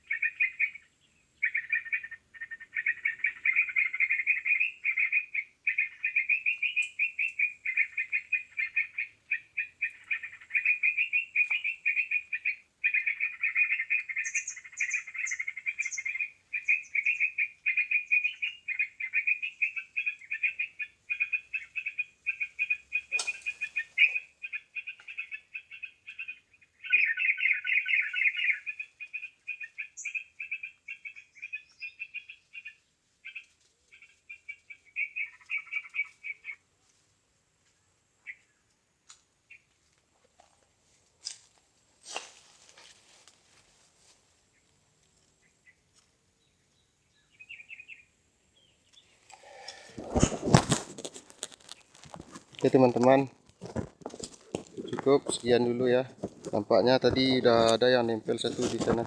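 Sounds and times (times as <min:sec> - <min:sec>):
rapid chattering bird calls: 0:00.0 - 0:36.6.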